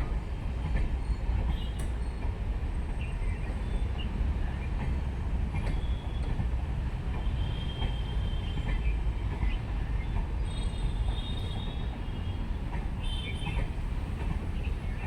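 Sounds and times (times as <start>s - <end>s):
train rumbling: 0.0s - 15.0s
train wheels squealing: 5.6s - 6.4s, 7.2s - 12.4s, 13.0s - 13.8s.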